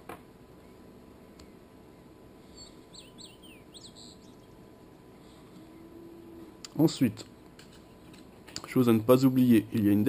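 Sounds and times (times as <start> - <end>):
faint room hiss: 0.0 - 10.0
bird chirping: 1.4 - 6.3.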